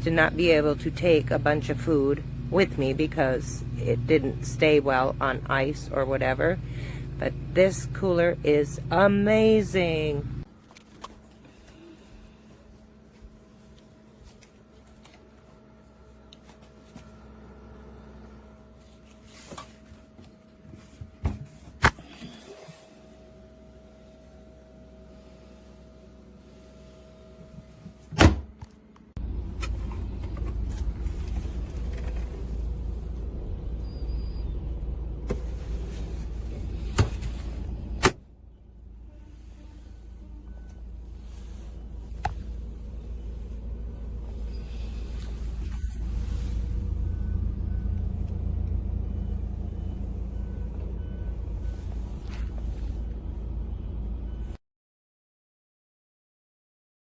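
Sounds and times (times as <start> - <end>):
vehicle rumble: 0.0 - 21.2, 29.1 - 54.6
faint hum: 0.0 - 54.6
faint steady hum: 28.6 - 54.6.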